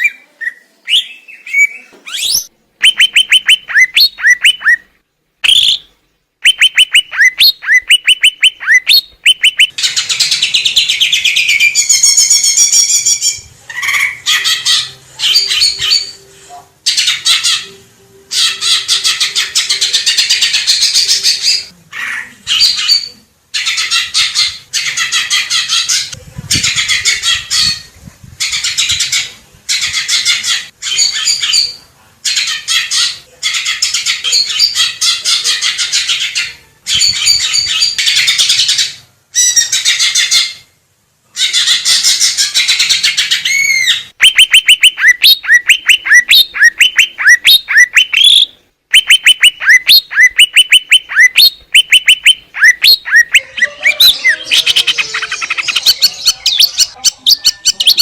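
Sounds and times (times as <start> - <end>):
bird singing chattering phrases: 0.0 - 16.2, 41.5 - 58.0.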